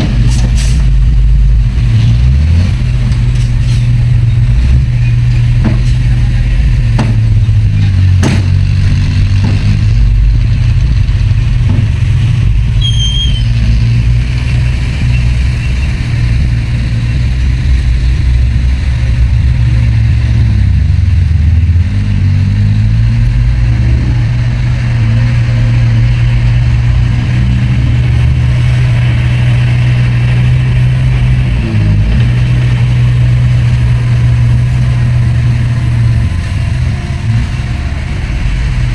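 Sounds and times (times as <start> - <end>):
heavy diesel engine running: 0.0 - 38.9
sharp knocks: 6.9 - 10.6, 11.5 - 12.5
high squeal: 12.7 - 17.4.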